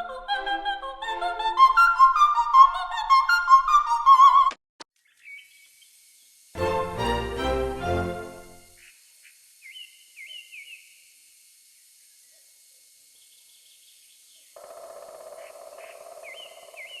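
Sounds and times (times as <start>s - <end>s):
music: 6.6s - 8.8s
bird-like chirps: 14.6s - 17.0s.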